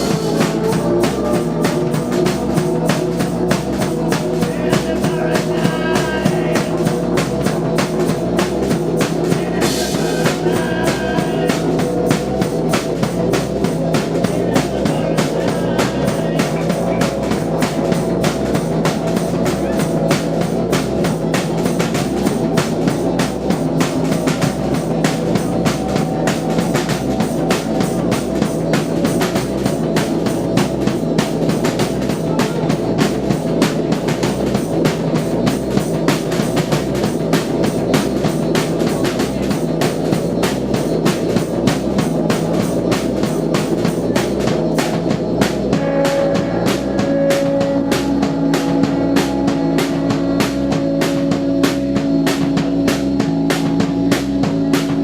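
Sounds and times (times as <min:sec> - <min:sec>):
driving drum beat: 0:00.0 - 0:55.0
live rock band playing: 0:00.0 - 0:55.0
cymbal wash: 0:42.0 - 0:55.0.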